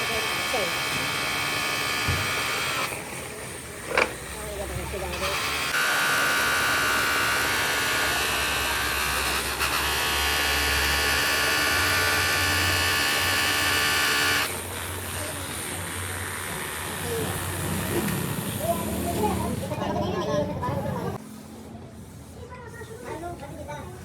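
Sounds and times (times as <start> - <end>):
power tool motor whining: 0.0 - 18.6.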